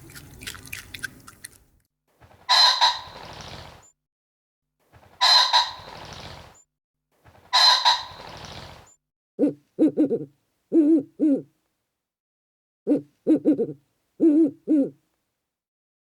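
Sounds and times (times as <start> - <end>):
short low wavering hoots: 9.4 - 11.5, 12.9 - 15.0.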